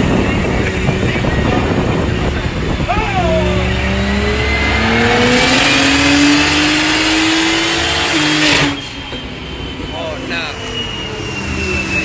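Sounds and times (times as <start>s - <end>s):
car engine full-throttle pull: 0.0s - 9.0s.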